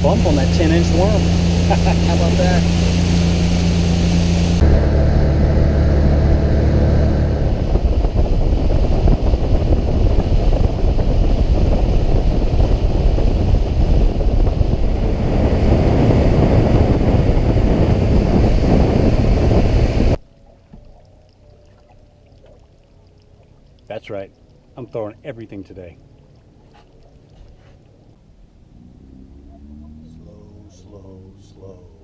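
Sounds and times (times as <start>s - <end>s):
wind on microphone: 0.0s - 20.2s
boat motor drone: 0.0s - 32.0s
water noise: 0.0s - 32.0s.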